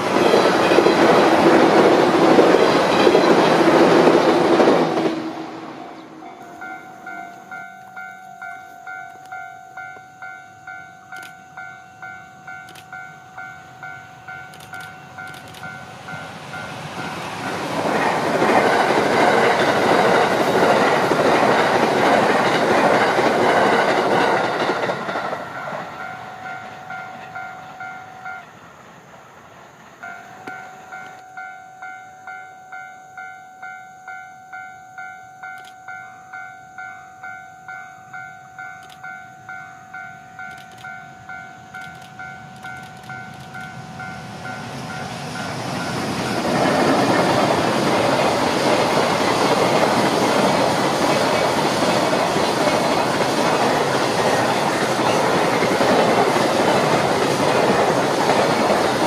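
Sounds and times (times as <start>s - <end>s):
train passing loudly: 0.0s - 59.0s
level crossing bell dinging: 6.3s - 16.3s.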